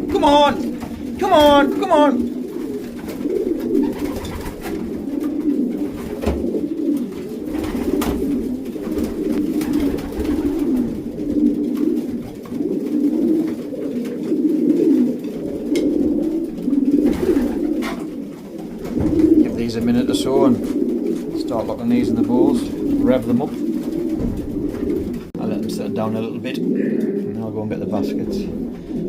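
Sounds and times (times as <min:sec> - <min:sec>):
pigeons cooing: 0:00.0 - 0:29.0.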